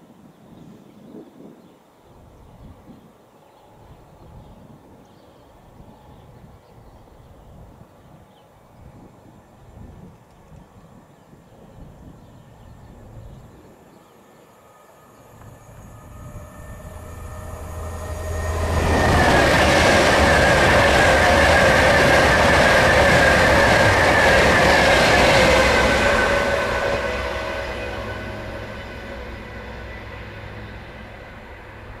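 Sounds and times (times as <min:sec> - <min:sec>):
high whine of train: 0:00.0 - 0:32.0
train passing at speed: 0:01.9 - 0:32.0.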